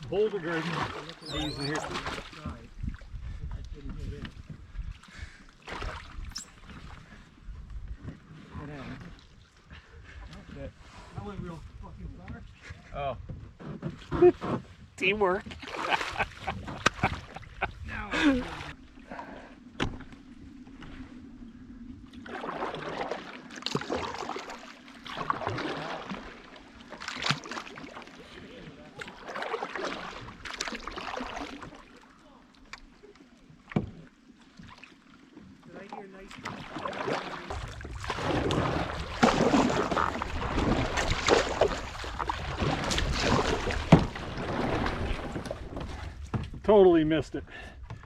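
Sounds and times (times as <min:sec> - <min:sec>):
paddle splashing through water: 0:00.3 - 0:03.2, 0:04.3 - 0:10.2, 0:13.6 - 0:21.2, 0:22.1 - 0:46.6
wind on microphone: 0:01.2 - 0:05.0, 0:14.2 - 0:19.1.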